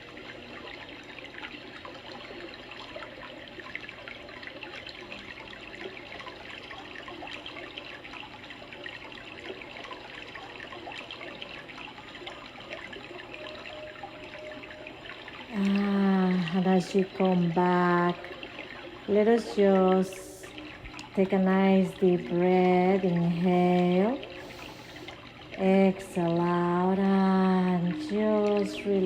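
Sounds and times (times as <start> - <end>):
creek water flowing: 0.0 - 29.0.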